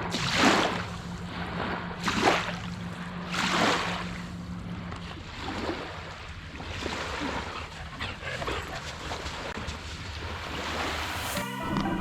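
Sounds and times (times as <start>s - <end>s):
water washing against boat hull: 0.0s - 7.8s
steady low hum: 0.0s - 12.0s.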